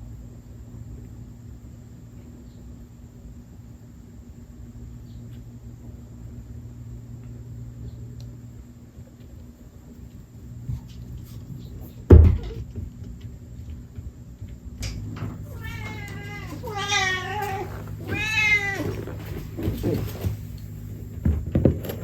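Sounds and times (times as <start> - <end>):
cat meowing: 15.4 - 20.0.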